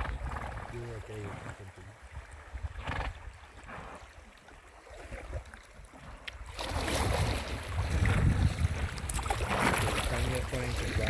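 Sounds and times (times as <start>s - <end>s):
wind buffeting microphone: 0.0s - 3.9s, 6.4s - 11.0s
water moving around kayak: 0.0s - 11.0s.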